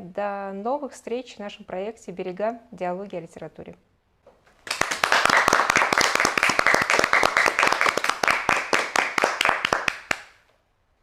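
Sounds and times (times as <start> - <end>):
applause: 4.6 - 10.4.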